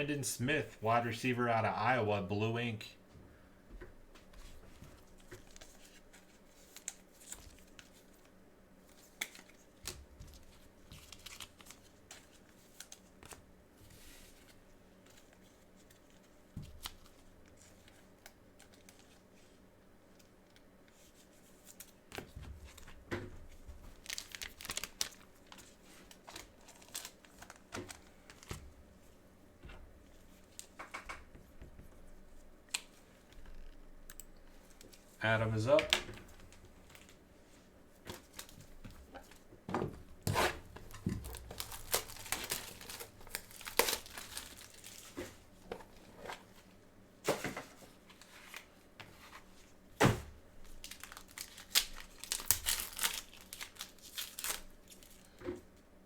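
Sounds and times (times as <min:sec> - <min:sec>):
plastic wrapping crinkling and tearing: 0:08.9 - 0:13.1, 0:23.8 - 0:28.5, 0:40.8 - 0:45.2, 0:50.6 - 0:55.4.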